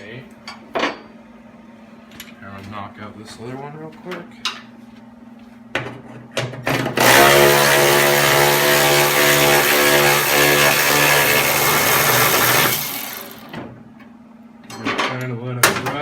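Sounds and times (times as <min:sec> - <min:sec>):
power tool running: 0:06.7 - 0:13.6.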